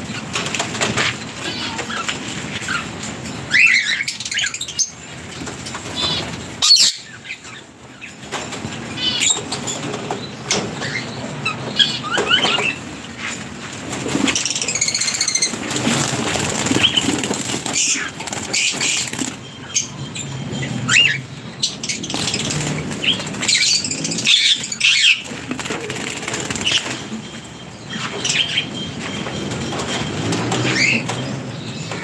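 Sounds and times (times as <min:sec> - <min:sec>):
birds chirping: 0:00.0 - 0:32.0
birds flapping wings: 0:13.4 - 0:19.4, 0:21.9 - 0:27.2.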